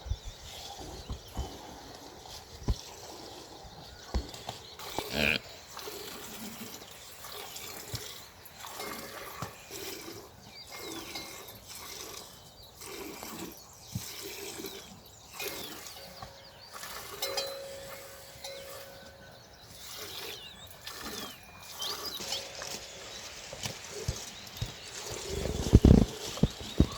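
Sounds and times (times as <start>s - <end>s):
farm animals calling: 0.4s - 26.9s
steady held animal call: 5.0s - 24.2s.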